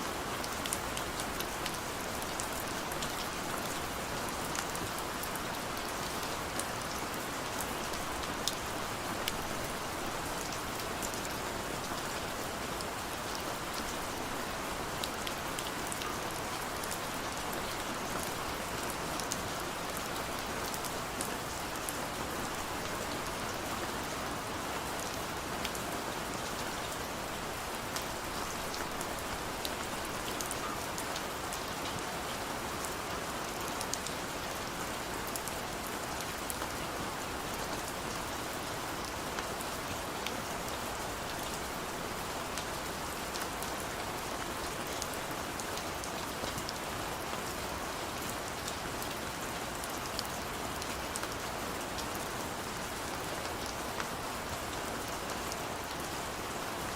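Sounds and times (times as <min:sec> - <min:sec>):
heavy rain on hard surface: 0:00.0 - 0:56.9.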